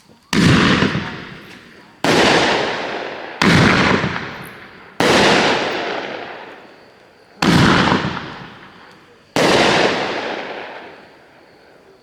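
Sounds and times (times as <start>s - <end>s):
firework bangs: 0.0s - 12.0s.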